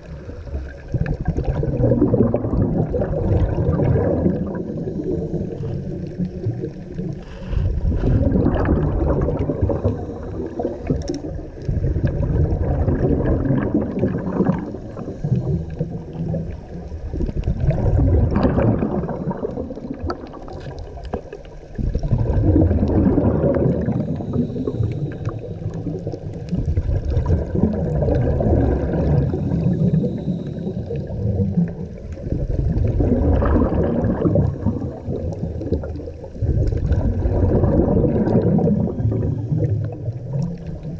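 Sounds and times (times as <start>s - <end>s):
bubbles gurgling: 0.0s - 40.9s
diver breathing through regulator: 4.6s - 6.2s, 7.1s - 11.3s, 23.7s - 26.0s, 29.0s - 31.2s.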